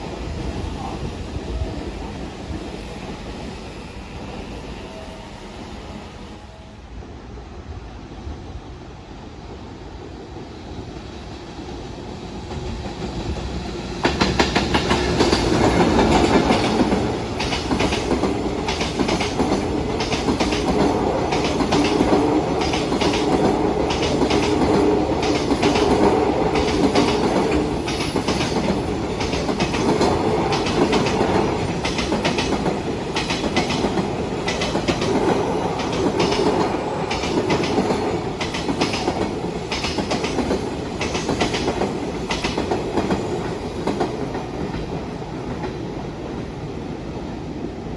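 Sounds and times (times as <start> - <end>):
freight train passing: 0.0 - 47.9
wheels clacking over rail joints: 13.5 - 45.8.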